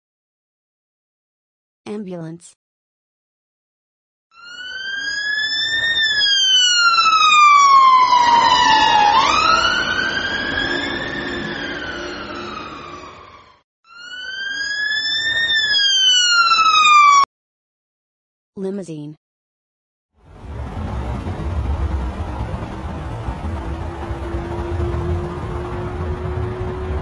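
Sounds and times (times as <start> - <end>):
ambulance siren wailing: 4.3 - 17.3, 20.4 - 27.0.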